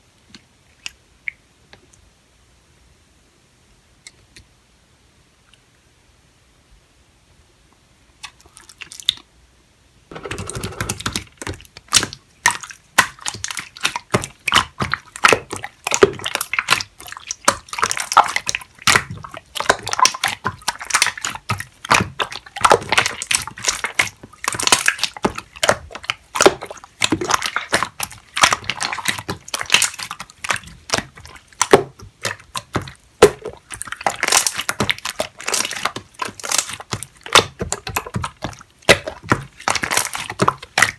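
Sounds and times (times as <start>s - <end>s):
slime squishing wet clicks: 10.8s - 40.9s.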